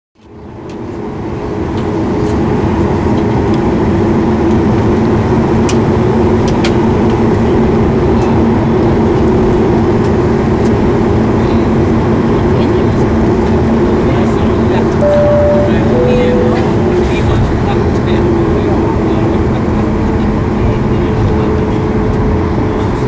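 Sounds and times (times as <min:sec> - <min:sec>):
jet engine cabin hum: 0:15.0 - 0:17.0.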